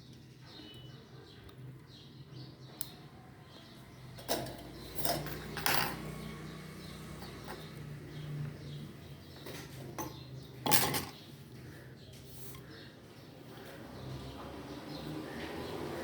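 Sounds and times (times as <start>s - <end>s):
hard objects clattering on surface: 4.2s - 6.1s, 9.4s - 11.2s.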